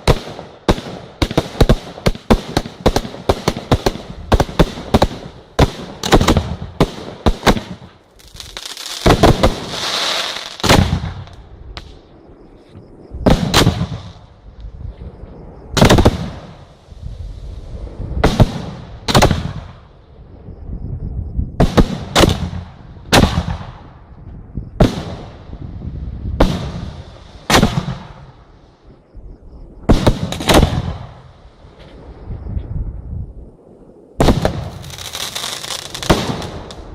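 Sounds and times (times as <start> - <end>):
fireworks crackling: 0.0 - 12.1, 15.8 - 19.8, 34.2 - 36.9
fireworks exploding: 0.0 - 12.1, 13.2 - 14.5, 15.8 - 19.9, 21.6 - 24.0, 24.8 - 28.5, 29.9 - 31.4, 34.2 - 36.9.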